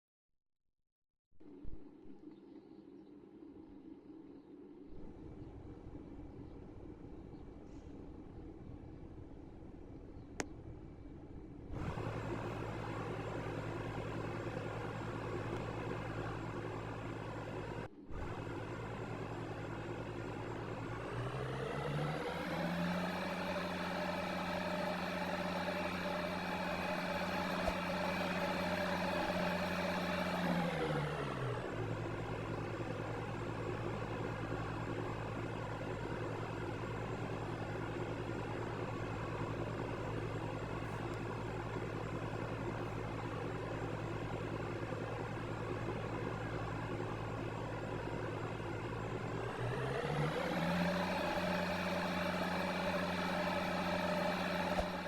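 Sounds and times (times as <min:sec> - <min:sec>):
washing machine motor whining: 0:11.7 - 0:55.0.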